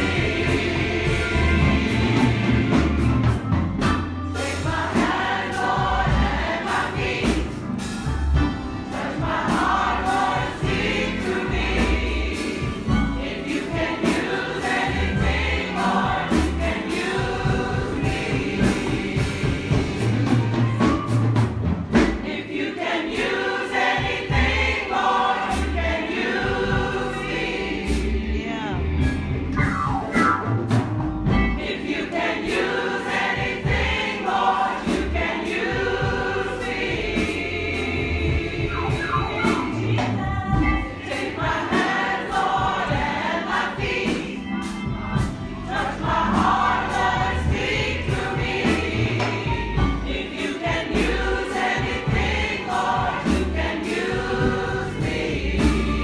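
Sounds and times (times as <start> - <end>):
low bass accompaniment: 0.0 - 13.4, 25.6 - 31.7, 35.0 - 41.5
congregation and choir singing: 0.0 - 56.0.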